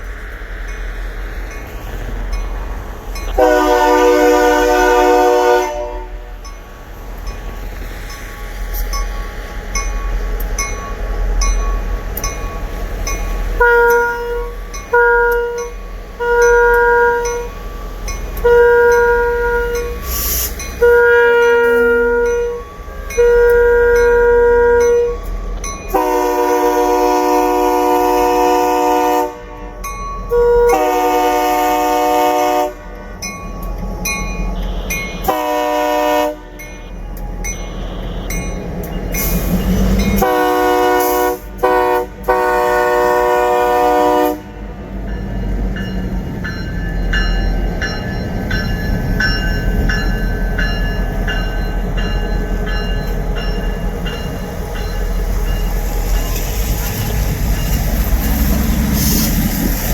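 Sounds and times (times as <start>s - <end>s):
locomotive air horn blasts: 3.3s - 6.4s, 13.6s - 17.5s, 18.4s - 25.2s, 25.9s - 33.2s, 34.5s - 37.0s, 37.7s - 38.5s, 40.2s - 44.6s.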